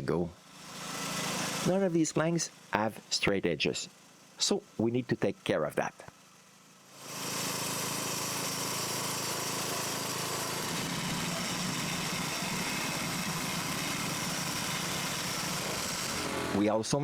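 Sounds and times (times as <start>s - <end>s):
engine-driven saw cutting wood: 0.0s - 3.2s, 6.8s - 16.8s.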